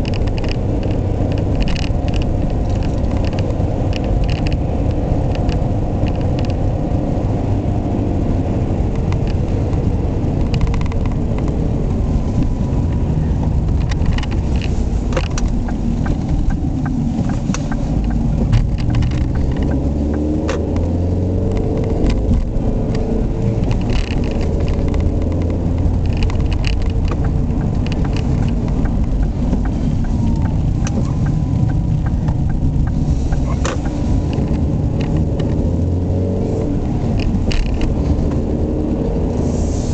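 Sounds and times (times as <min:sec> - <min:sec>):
car engine running: 0:00.0 - 0:39.9
sharp clicks: 0:13.6 - 0:35.8.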